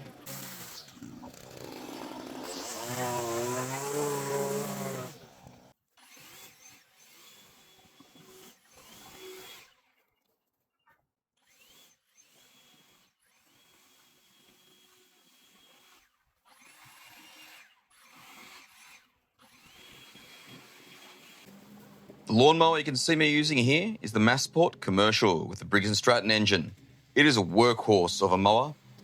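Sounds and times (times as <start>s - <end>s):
power tool motor running: 0.0s - 9.8s, 11.4s - 22.4s.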